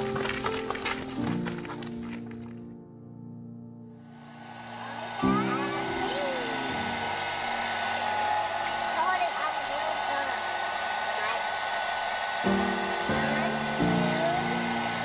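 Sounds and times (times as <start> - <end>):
sustained music chords: 4.2 - 11.4, 12.2 - 15.0
hair dryer blowing air: 4.2 - 15.0.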